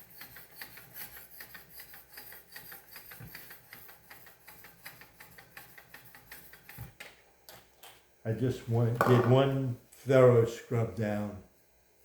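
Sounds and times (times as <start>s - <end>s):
sharpening stone rasping on knife: 0.0s - 6.5s.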